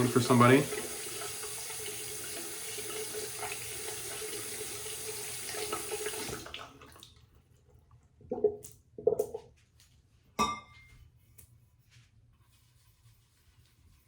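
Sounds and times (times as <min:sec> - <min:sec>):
tap water running into sink: 0:00.0 - 0:07.3.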